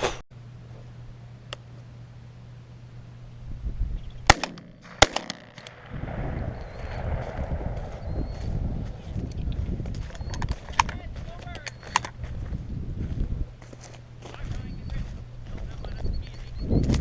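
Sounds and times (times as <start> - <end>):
shotgun shots: 4.3 - 9.4
rushing noise: 5.8 - 10.0.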